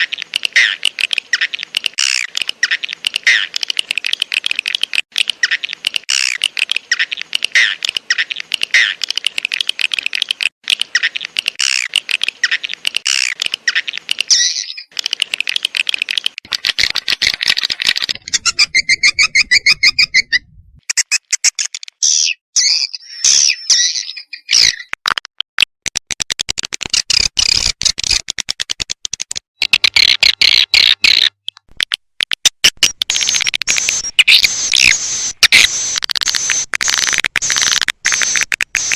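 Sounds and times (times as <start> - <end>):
swiftlets twittering chirps: 16.5 - 24.3.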